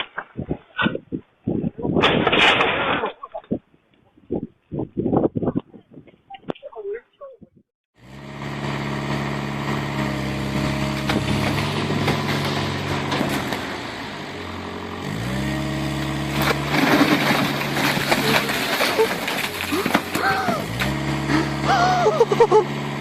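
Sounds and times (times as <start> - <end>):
vehicle engine revving: 8.0 - 23.0.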